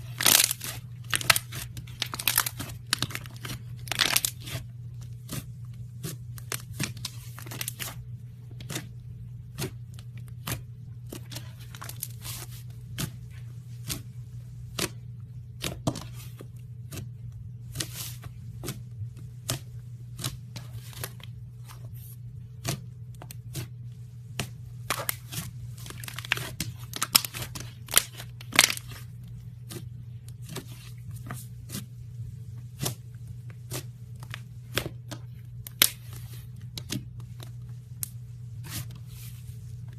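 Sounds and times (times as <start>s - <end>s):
slime crackling and popping: 0.0s - 4.6s, 24.8s - 29.0s
steady low hum: 0.0s - 39.9s.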